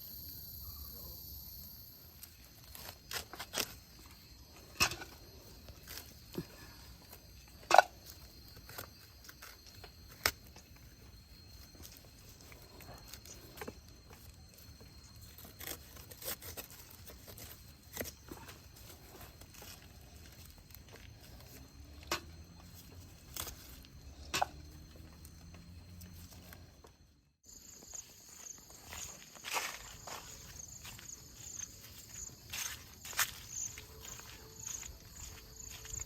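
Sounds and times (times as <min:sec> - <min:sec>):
plants rustling: 0:02.2 - 0:26.8, 0:27.5 - 0:36.0
footsteps crunching: 0:27.4 - 0:36.0.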